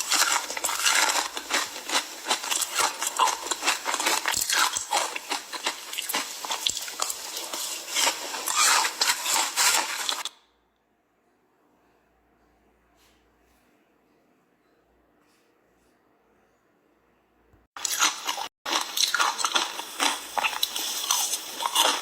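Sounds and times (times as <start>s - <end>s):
ice crunching in mouth: 0.0s - 10.4s, 17.8s - 22.0s.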